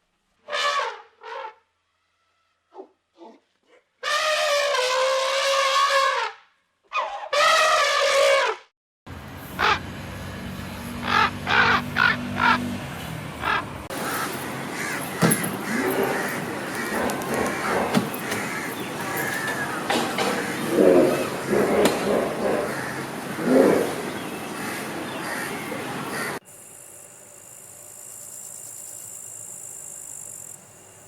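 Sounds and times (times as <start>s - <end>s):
loud brassy animal calls: 11.0s - 12.7s, 13.4s - 26.4s.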